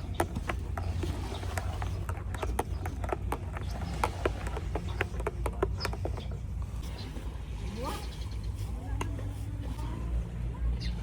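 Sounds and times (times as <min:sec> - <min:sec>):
hollow knocks and clicks: 0:00.0 - 0:06.7.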